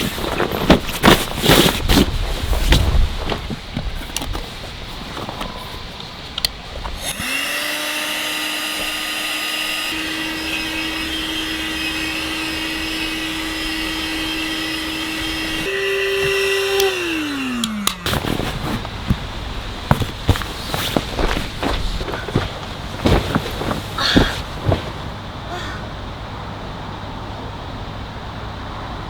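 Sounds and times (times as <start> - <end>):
electric air pump humming: 7.0 - 25.2.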